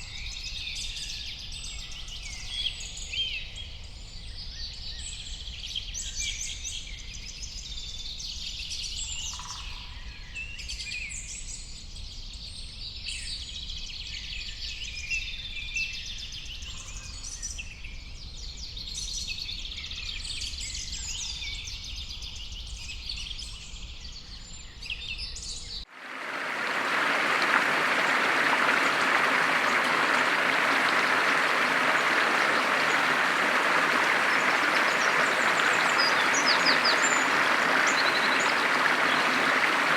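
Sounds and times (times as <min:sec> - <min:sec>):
steady rushing noise: 0:25.9 - 0:39.9
birds singing and chirping: 0:26.6 - 0:39.9.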